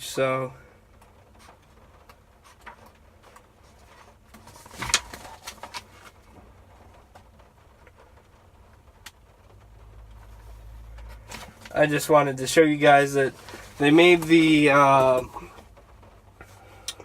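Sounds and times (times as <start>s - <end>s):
paper pages rustling: 2.4s - 6.4s, 10.2s - 12.1s, 12.8s - 15.6s.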